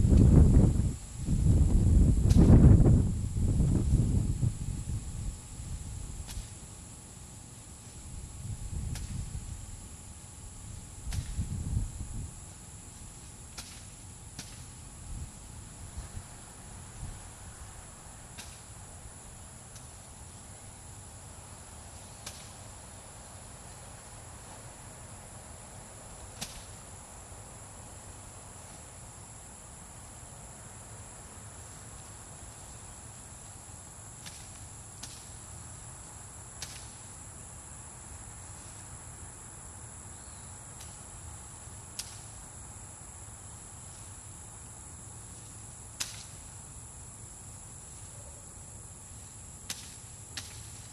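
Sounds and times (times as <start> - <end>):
high insect chorus: 0.0 - 50.9
machete chopping corn stalks: 2.2 - 2.5, 6.2 - 6.6, 8.9 - 9.3, 11.0 - 11.4, 13.4 - 14.8, 18.3 - 18.8, 22.0 - 22.6, 26.3 - 26.8, 34.2 - 35.4, 36.6 - 37.1, 40.8 - 41.0, 41.9 - 42.3, 45.4 - 46.5, 49.7 - 50.9.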